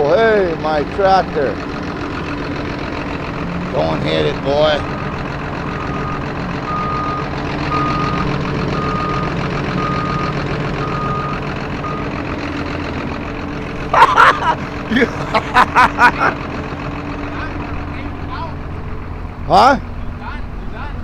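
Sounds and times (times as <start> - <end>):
diesel engine hum: 0.0 - 21.0
reversing alarm beeps: 5.8 - 12.1.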